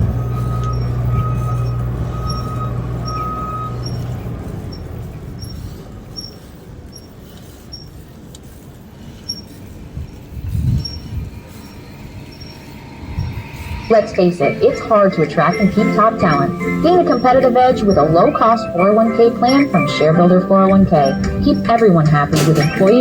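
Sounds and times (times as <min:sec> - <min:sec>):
pulsing beep: 0:00.0 - 0:04.1, 0:11.6 - 0:23.0
faint even ticking: 0:00.0 - 0:23.0
large vehicle engine running: 0:00.0 - 0:23.0.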